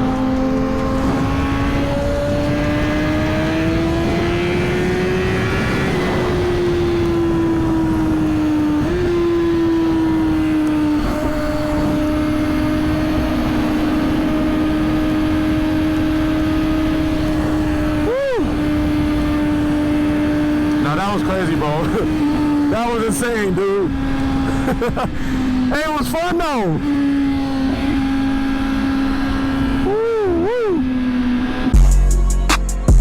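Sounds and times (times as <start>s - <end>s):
wind noise: 0.0s - 25.7s
motorcycle engine running: 0.0s - 32.2s.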